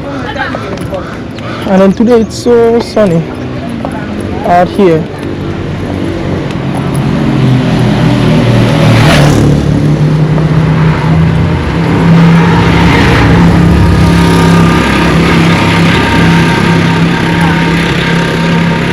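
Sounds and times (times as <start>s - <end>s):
vehicle engine humming: 0.0s - 18.9s.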